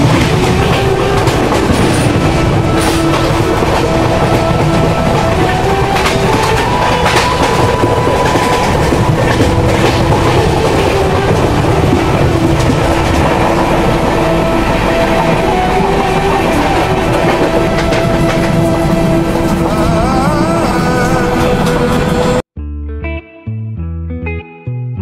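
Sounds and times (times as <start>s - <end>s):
wheels clicking over rail joints: 0.0s - 19.6s
train rumble: 0.0s - 22.4s.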